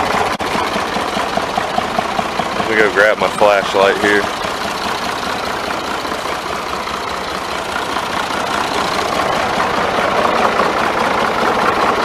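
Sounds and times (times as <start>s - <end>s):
backhoe engine idling: 0.0s - 12.0s.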